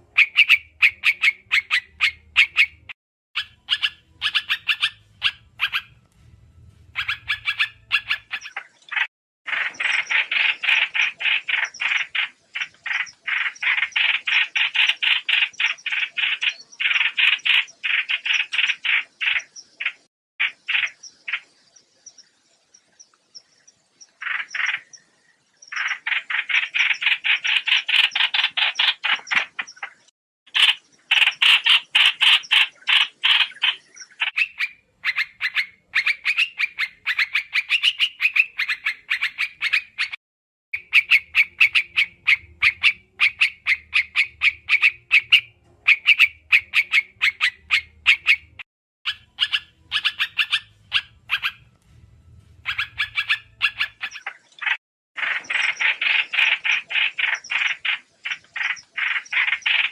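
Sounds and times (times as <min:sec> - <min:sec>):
bird chattering call: 0:00.0 - 0:06.0, 0:06.9 - 0:21.5, 0:40.8 - 0:51.7, 0:52.6 - 0:59.9
faint low hum: 0:05.0 - 0:08.0, 0:49.4 - 0:54.0.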